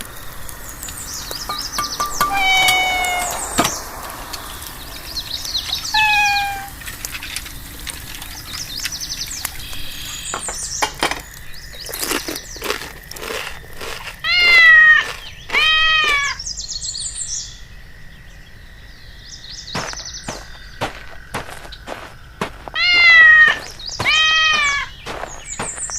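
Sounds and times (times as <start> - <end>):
cat meowing: 2.2 - 3.5, 5.9 - 6.8, 14.2 - 16.4, 22.8 - 24.9.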